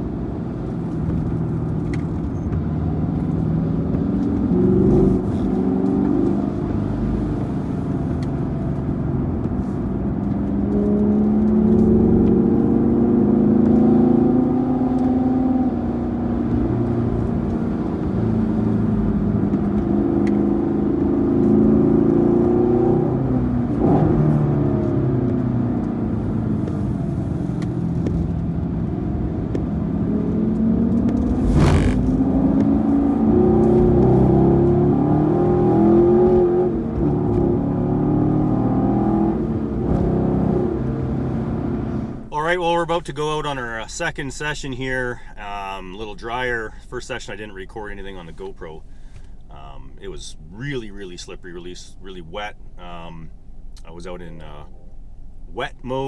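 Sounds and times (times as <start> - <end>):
car engine accelerating: 0.0 - 42.3.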